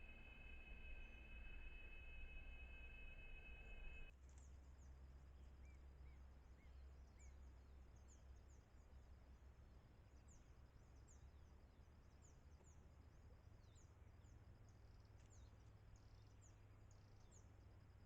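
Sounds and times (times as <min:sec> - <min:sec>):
low rumble: 0:00.0 - 0:04.1
pulsing trill: 0:00.0 - 0:04.1.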